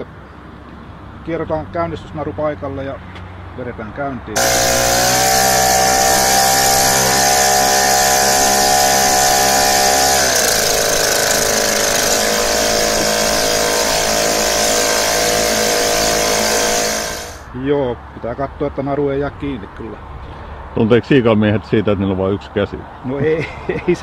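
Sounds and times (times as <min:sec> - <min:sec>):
outboard motor running: 0:04.4 - 0:17.4.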